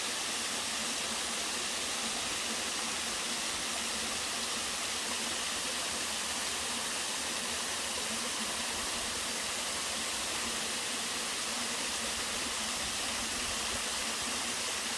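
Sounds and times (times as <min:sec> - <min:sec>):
waterfall pouring into stream: 0:00.0 - 0:14.9.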